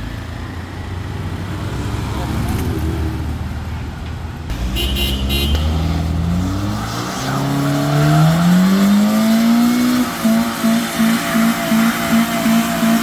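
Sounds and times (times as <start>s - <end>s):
car engine revving hard: 4.5s - 13.0s.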